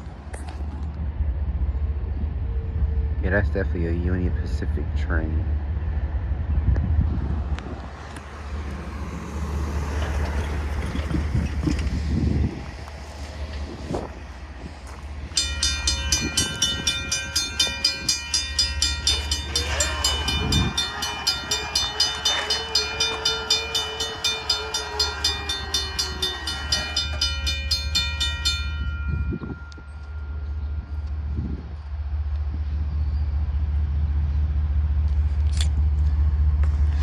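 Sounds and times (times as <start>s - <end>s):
bell clanging: 15.3s - 31.1s
locomotive horn: 15.4s - 30.1s.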